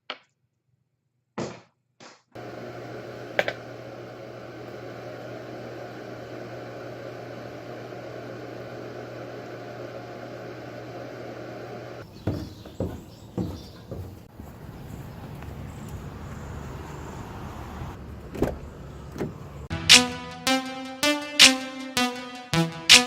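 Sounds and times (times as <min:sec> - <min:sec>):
low machine hum with hiss: 0:02.4 - 0:12.0
knocks: 0:12.2 - 0:14.3.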